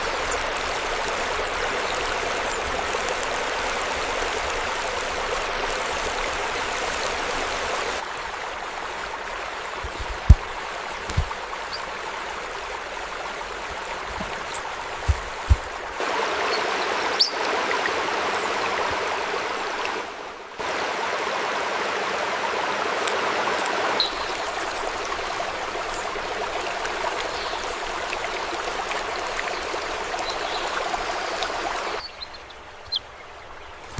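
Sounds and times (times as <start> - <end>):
stream water rushing: 0.0 - 33.9
dull low thumps: 14.1 - 15.9.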